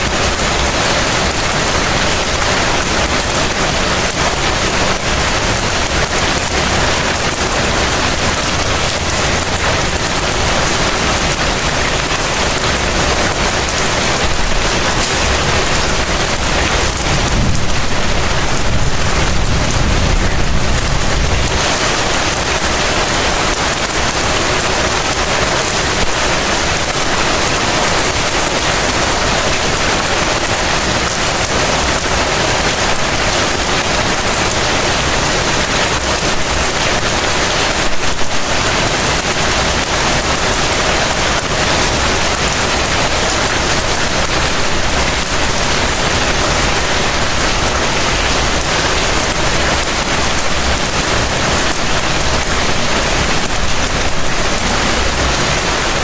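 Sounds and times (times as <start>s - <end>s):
heavy rain pouring: 0.0s - 56.0s
low rumble: 16.6s - 21.6s.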